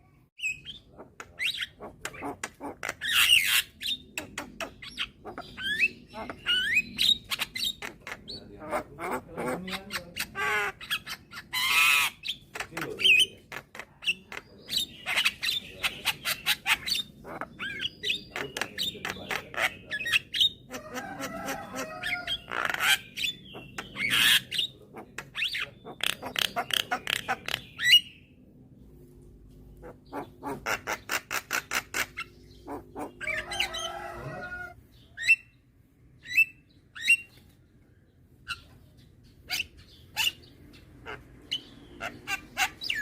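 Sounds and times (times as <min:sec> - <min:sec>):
myna bird calling: 0:00.0 - 0:28.3, 0:29.7 - 0:35.6, 0:38.4 - 0:43.0.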